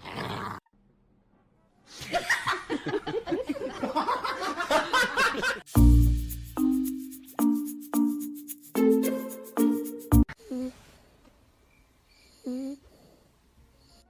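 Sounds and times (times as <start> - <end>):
music with deep bass hit: 5.8 - 6.6.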